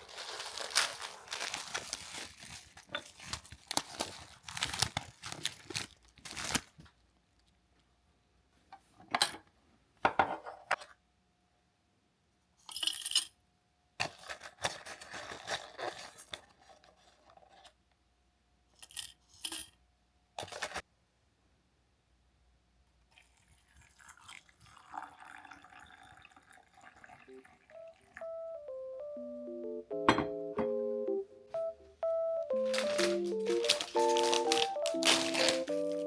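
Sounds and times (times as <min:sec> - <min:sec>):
food packaging crinkling: 0:00.0 - 0:07.0, 0:14.0 - 0:17.7, 0:20.4 - 0:20.8, 0:32.5 - 0:36.0
tableware clinking: 0:30.1 - 0:30.8.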